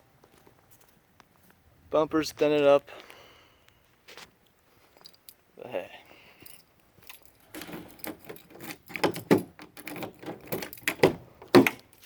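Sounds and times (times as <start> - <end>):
clicks and rattles from handling: 7.1 - 12.0.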